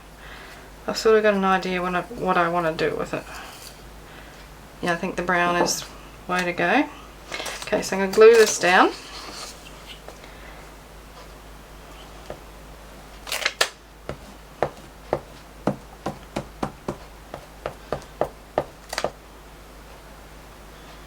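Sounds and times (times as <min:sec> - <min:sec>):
paper rustling: 0:07.3 - 0:10.2.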